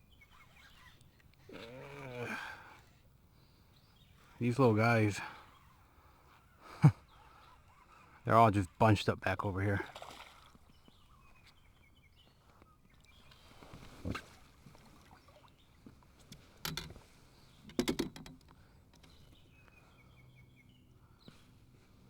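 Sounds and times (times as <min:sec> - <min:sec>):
faint bird chirps: 0:00.0 - 0:08.8, 0:10.7 - 0:15.9, 0:18.6 - 0:21.9
fishing gear knocking and clattering: 0:16.6 - 0:17.0, 0:17.6 - 0:19.2.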